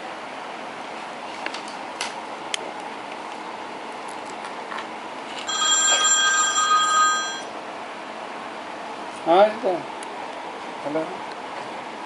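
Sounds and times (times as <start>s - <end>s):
mobile phone ringing: 5.5s - 7.6s.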